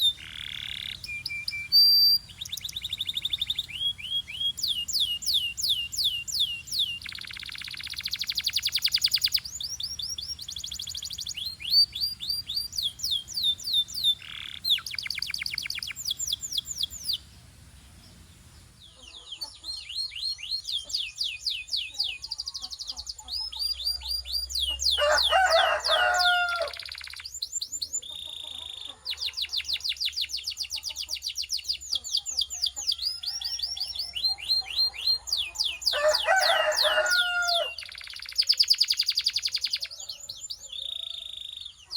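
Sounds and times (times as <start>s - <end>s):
harsh bird call: 0.0s - 20.2s, 24.0s - 27.3s, 32.8s - 40.0s
canary trilling song: 0.0s - 41.9s.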